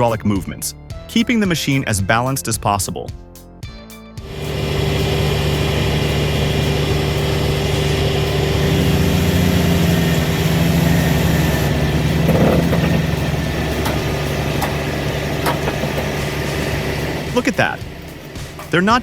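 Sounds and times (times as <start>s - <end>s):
excavator diesel engine running: 4.2s - 19.0s.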